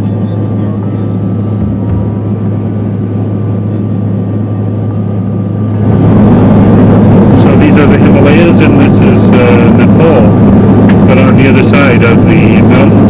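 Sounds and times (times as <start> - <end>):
propeller drone in cabin: 0.0 - 13.0.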